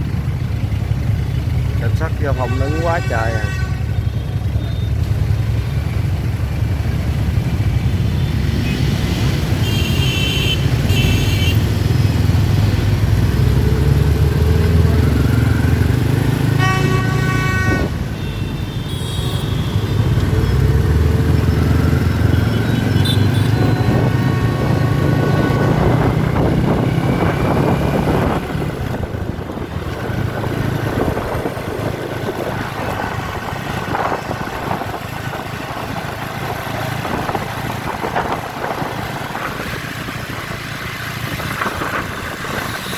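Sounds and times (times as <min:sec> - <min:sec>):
motorbike traffic: 0:00.0 - 0:42.9
vehicle horns tooting: 0:02.0 - 0:05.0, 0:08.2 - 0:11.7, 0:16.4 - 0:20.5, 0:22.4 - 0:24.8.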